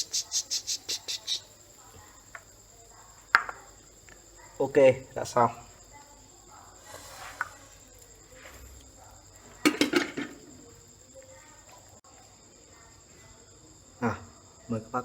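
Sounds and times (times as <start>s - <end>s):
crickets trilling: 0.0s - 15.0s
dishes clinking: 9.6s - 10.6s.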